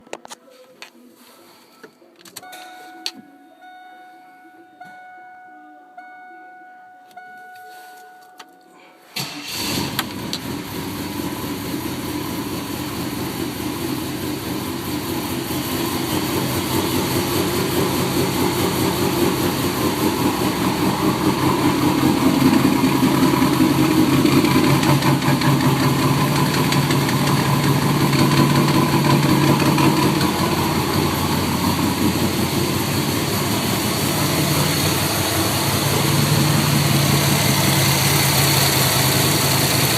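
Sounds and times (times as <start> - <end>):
car engine starting and running: 9.1 - 39.9.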